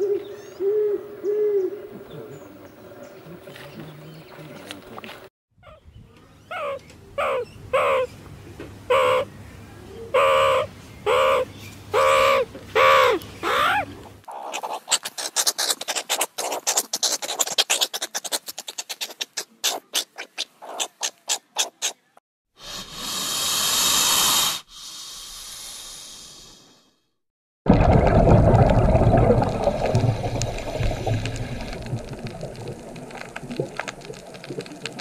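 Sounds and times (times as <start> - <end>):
meerkat calls: 6.5 - 8.1, 8.9 - 9.3, 10.1 - 22.0
snake hissing: 22.6 - 27.0.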